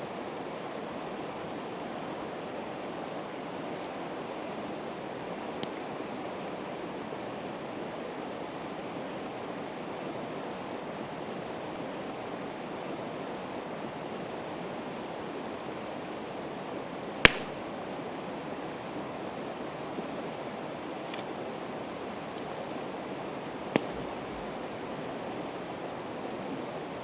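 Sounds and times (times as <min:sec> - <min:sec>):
faint high chirp: 0:09.6 - 0:16.5
burning wood popping: 0:17.3 - 0:17.6.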